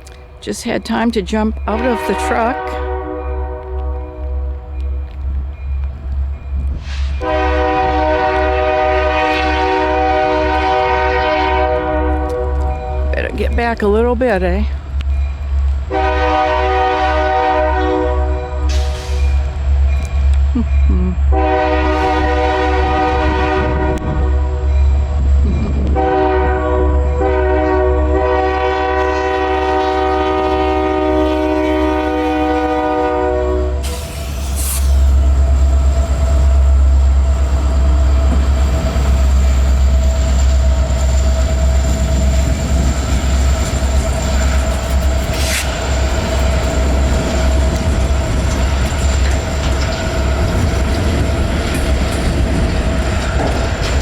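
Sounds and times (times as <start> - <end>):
train rumbling past: 0.0 - 54.0
locomotive horn: 1.7 - 4.6, 7.2 - 13.2, 15.9 - 19.2, 21.3 - 24.7, 25.9 - 35.0
train wheels clattering: 37.4 - 54.0.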